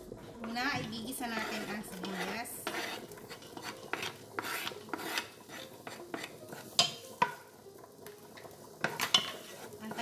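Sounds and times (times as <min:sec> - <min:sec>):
spoon stirring onion in pot: 0:00.0 - 0:10.0
spoon scraping cutting board: 0:01.2 - 0:07.0
spoon knocking on pot: 0:05.8 - 0:07.5, 0:08.8 - 0:10.0.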